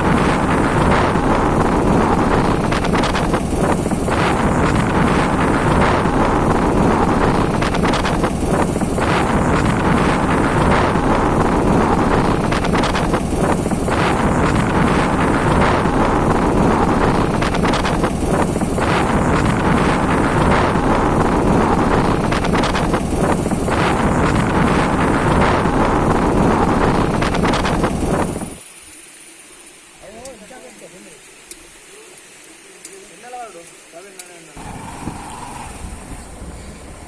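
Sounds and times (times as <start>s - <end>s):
wind buffeting microphone: 0.0s - 28.6s, 34.6s - 37.0s
motorcycle running: 34.6s - 37.0s.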